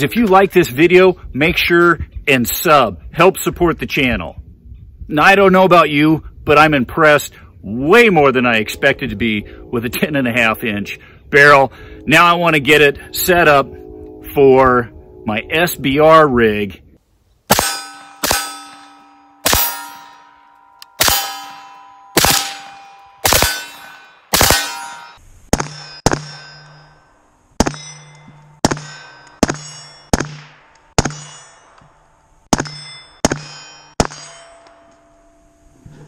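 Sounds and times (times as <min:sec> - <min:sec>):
metallic ring of steel targets: 0:07.8 - 0:16.7, 0:17.5 - 0:36.0
suppressed rifle shots: 0:22.2 - 0:23.7, 0:24.3 - 0:24.7.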